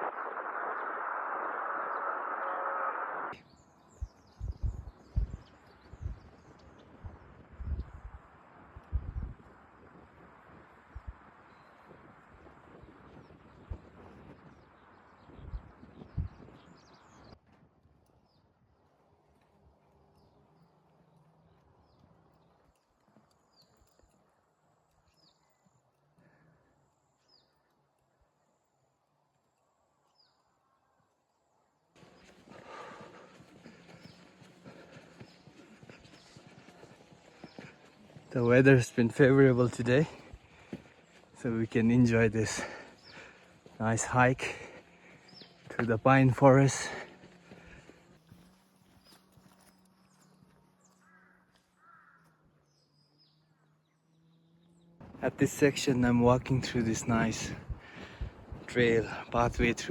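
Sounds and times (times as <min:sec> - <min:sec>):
steady rushing noise: 0:00.0 - 0:03.4, 0:32.0 - 0:48.0
high downward bird chirp: 0:00.0 - 0:08.0
small birds chirping: 0:03.1 - 0:17.4, 0:18.1 - 0:59.9.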